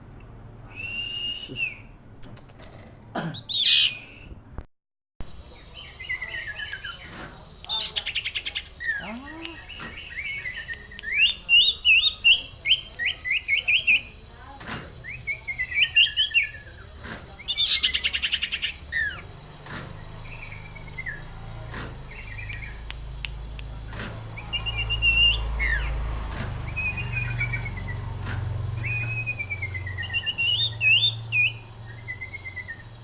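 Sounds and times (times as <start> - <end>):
bird singing whistled phrases: 0.7 - 2.0, 3.5 - 4.4, 7.7 - 14.1, 15.0 - 16.8, 24.4 - 26.0, 26.7 - 28.1, 28.7 - 33.0
faint regular clicks: 5.2 - 15.0, 21.6 - 24.4.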